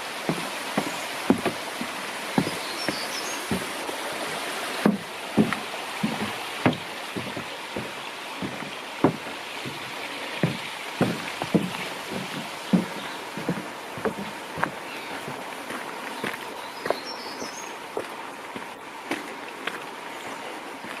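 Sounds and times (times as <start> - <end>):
steady rushing hiss: 0.0 - 16.0
footsteps on forest trail: 0.0 - 21.0.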